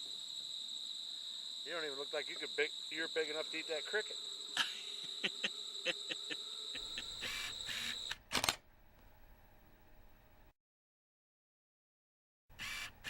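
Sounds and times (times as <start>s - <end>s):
insects trilling: 0.0s - 8.2s.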